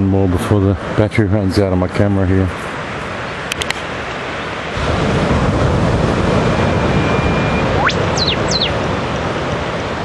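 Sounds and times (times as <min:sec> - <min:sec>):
surf: 0:00.0 - 0:10.0
bird whistle ending in whip-crack: 0:07.0 - 0:08.8.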